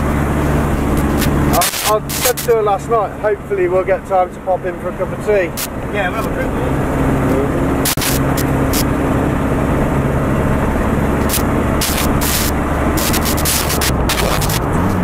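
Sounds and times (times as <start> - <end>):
road noise: 0.0 - 15.0
van engine drone: 0.0 - 15.0
short hisses: 7.8 - 8.9, 11.2 - 14.7.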